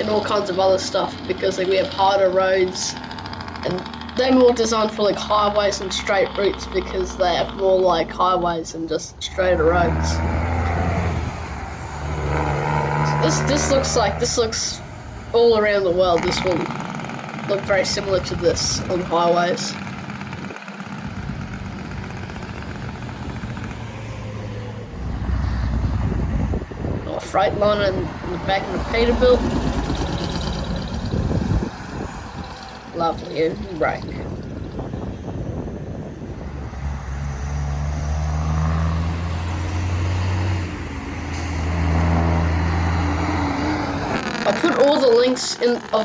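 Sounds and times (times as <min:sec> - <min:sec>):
road noise: 0:00.0 - 0:46.0
truck engine drone: 0:00.0 - 0:46.0.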